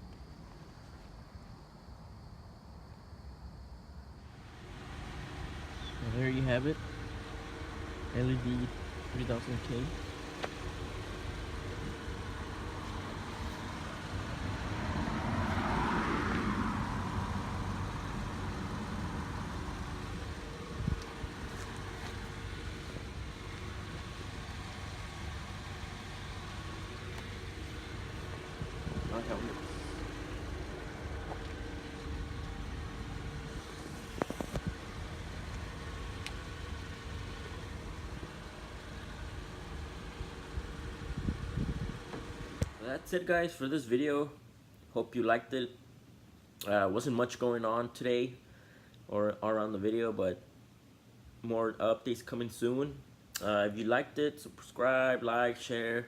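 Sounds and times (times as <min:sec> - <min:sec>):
car engine idling: 0:04.2 - 0:43.0
low vehicle rumble: 0:04.2 - 0:43.3
vehicle passing: 0:04.3 - 0:42.0.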